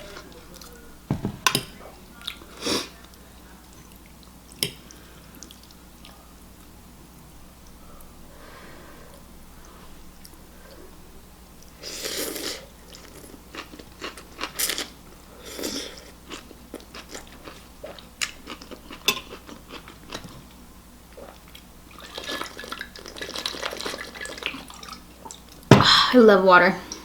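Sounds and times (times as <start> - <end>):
person chewing: 11.6 - 20.5.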